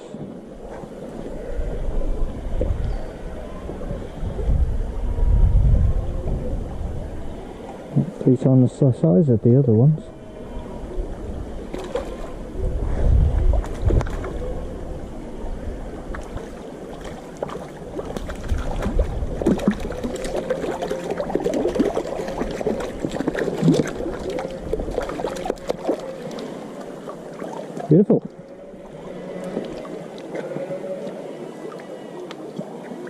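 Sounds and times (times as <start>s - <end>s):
low wind-like rumble: 0.0s - 32.6s
stream water splashing: 11.6s - 33.0s.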